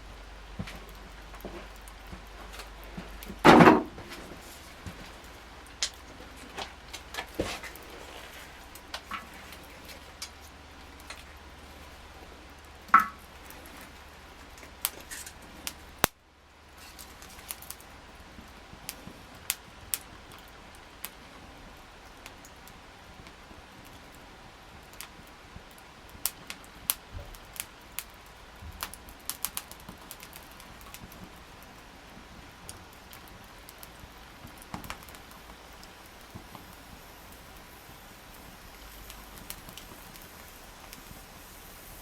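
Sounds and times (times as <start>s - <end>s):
campfire crackling and popping: 0.0s - 42.0s
wood knocking clatter: 3.0s - 4.4s.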